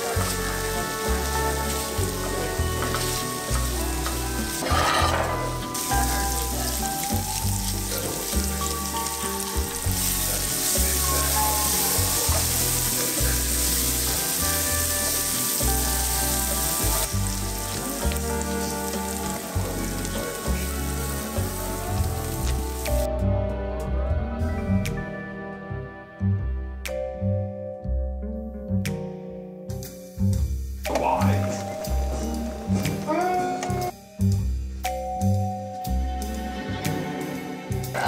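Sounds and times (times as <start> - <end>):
food sizzling in a frying pan: 0.0 - 23.1
soft background music with beat: 0.0 - 38.0.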